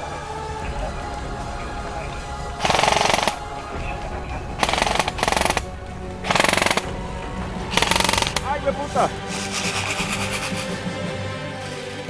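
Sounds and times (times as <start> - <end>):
airsoft rifle automatic bursts: 2.6 - 3.4, 4.6 - 5.7, 6.3 - 6.9, 7.7 - 8.5.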